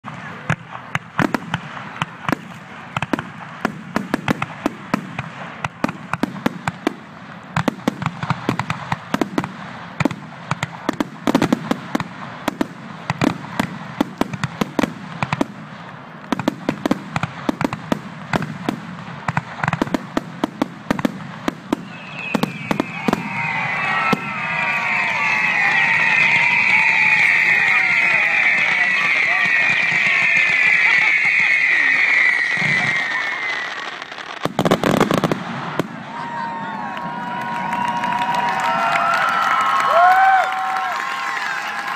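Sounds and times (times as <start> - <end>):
firework shells bursting: 21.6 - 36.0
crowd cheering and whistling: 21.7 - 34.2, 36.0 - 41.9.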